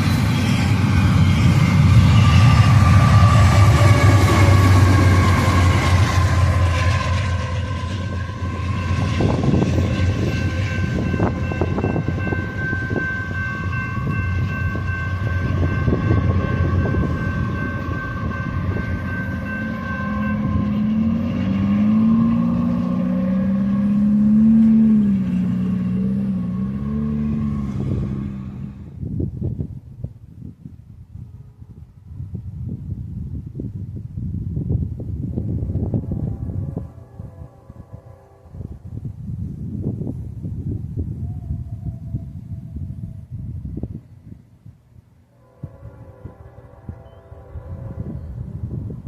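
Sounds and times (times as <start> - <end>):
high ringing tones: 0.0 - 24.0
wavering low drone: 0.0 - 29.1
freight train rumbling past: 0.0 - 49.0.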